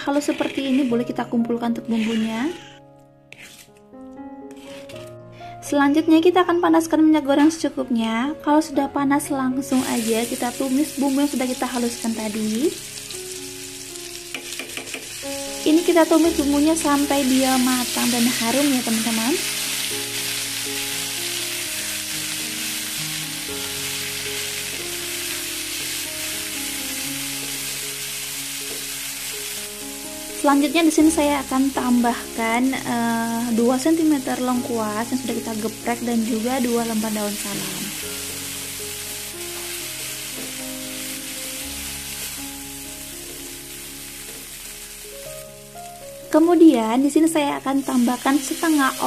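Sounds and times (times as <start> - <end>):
spatula stirring in pan: 0.0 - 1.0, 1.8 - 3.8, 4.5 - 5.0
spice paste sizzling in oil: 0.0 - 3.8, 4.5 - 5.0, 9.7 - 49.0
background music: 0.0 - 49.0.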